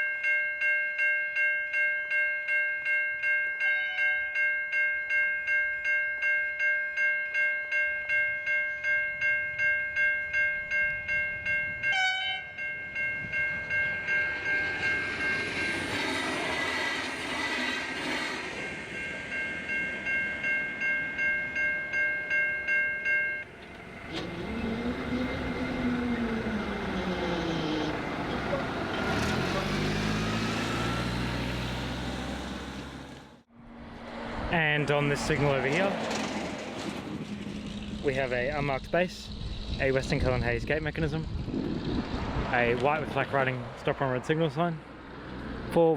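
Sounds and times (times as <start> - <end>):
level crossing bells ringing: 0.0 - 15.9, 18.5 - 31.3
train passing: 9.9 - 45.8
vehicle engine revving: 23.6 - 38.6.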